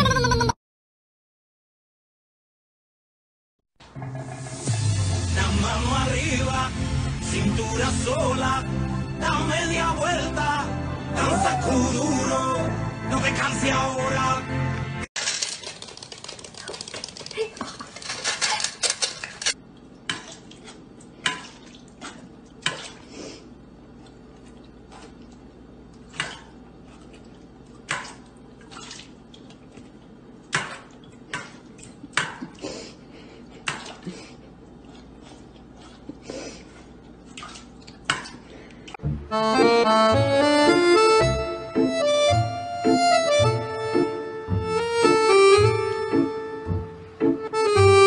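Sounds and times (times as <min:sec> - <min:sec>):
dog eating kibble from metal bowl: 0:15.2 - 0:19.6.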